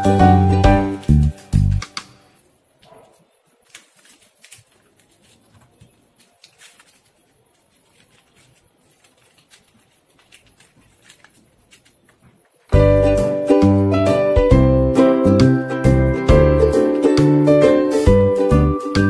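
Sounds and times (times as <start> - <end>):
paper crinkling while folded: 2.9 - 12.8.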